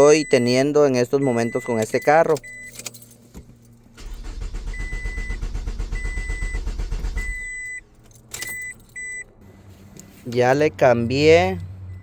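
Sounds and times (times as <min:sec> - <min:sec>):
car warning chime beeping: 0:00.0 - 0:02.9, 0:04.0 - 0:09.3
car engine cranking without starting: 0:00.0 - 0:09.3.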